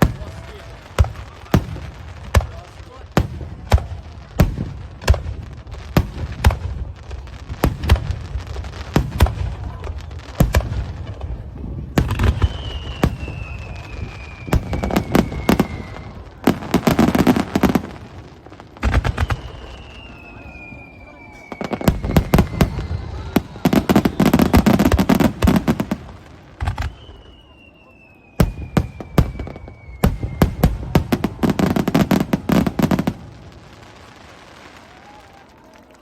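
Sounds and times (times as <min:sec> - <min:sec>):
rapid firework crackling: 0:00.0 - 0:27.4
whistle sliding down in pitch: 0:19.2 - 0:24.6, 0:26.8 - 0:30.4.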